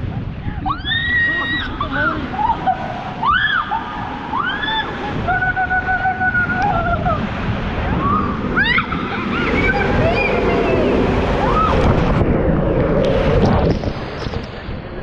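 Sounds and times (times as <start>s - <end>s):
rushing water: 0.0s - 15.0s
high voices yelling and screaming: 0.6s - 11.8s.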